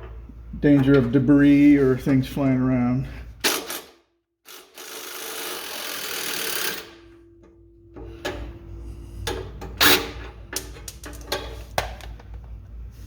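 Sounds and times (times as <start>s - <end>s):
ratchet clicking: 4.5s - 7.0s.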